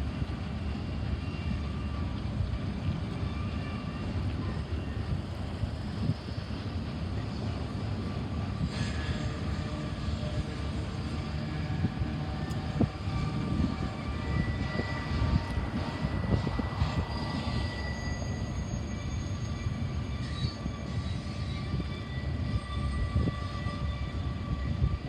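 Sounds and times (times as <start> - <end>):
freight train rumbling past: 0.0 - 25.0
thin steady squeal: 2.8 - 25.0.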